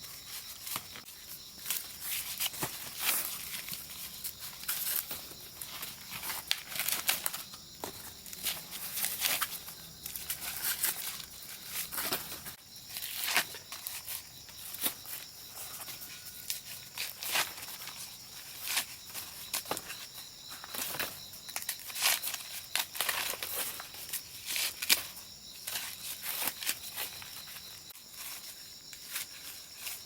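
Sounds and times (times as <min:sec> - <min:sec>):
insects chirring: 0:00.0 - 0:30.0
dry leaves rustling and tearing: 0:00.5 - 0:07.5.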